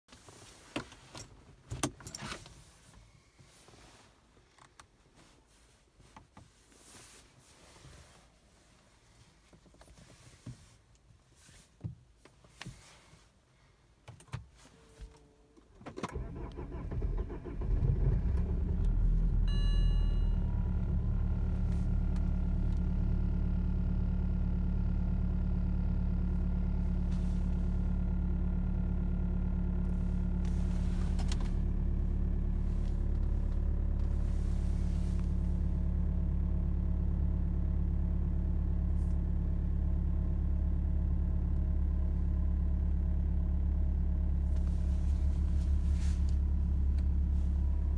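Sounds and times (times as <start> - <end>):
diesel engine cranking: 16.0 - 19.2.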